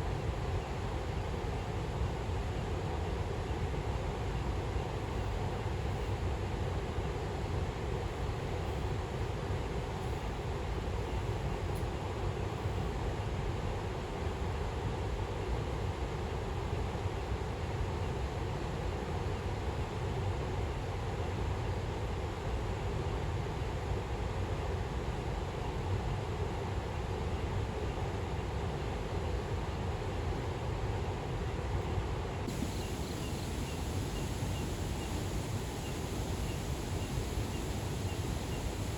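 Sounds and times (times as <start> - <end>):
low outdoor rumble: 32.2 - 38.9
faint high chirps: 32.5 - 38.9
heavy rain on a tent: 32.5 - 38.9.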